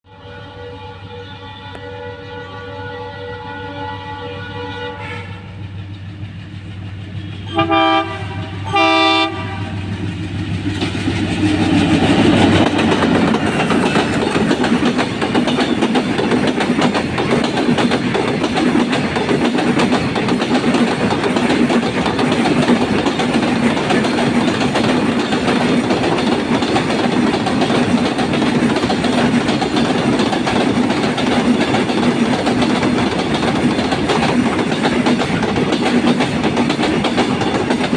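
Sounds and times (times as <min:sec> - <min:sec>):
train horn blasts: 0:00.0 - 0:05.6, 0:07.3 - 0:09.9
train wheels clattering over rails: 0:05.5 - 0:37.9.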